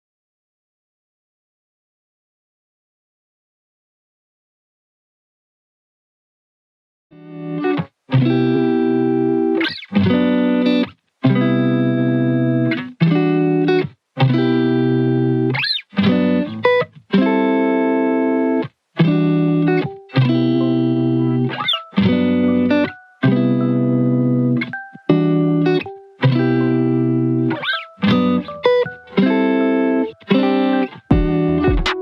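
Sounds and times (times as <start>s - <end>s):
guitar playing chords: 7.2s - 32.0s.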